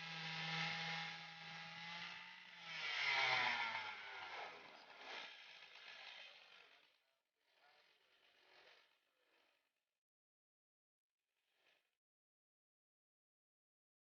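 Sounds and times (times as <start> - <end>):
chainsaw engine driving sawmill: 0.0 - 9.7.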